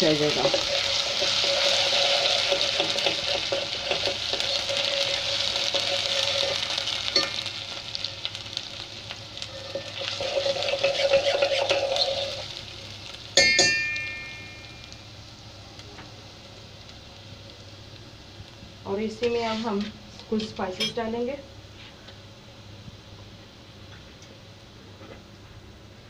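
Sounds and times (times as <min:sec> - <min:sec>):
onion sizzling in hot fat: 0:00.0 - 0:24.6
metal spoon stirring and scraping: 0:09.5 - 0:12.4
spoon clanging on pot: 0:13.4 - 0:14.7.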